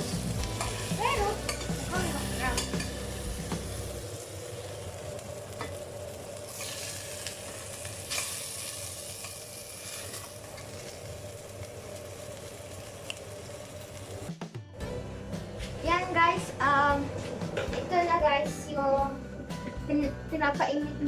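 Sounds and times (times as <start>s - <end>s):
food sizzling in hot oil: 0.0s - 14.3s.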